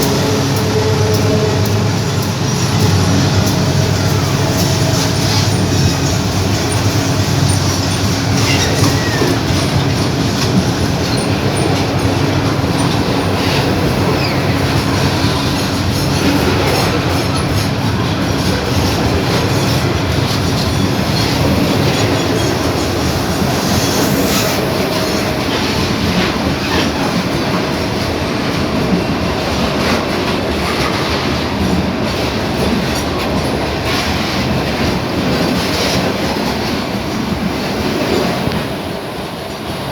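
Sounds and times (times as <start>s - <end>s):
high wheel squeal: 0.0s - 27.1s
freight train wheels clattering: 0.0s - 39.6s.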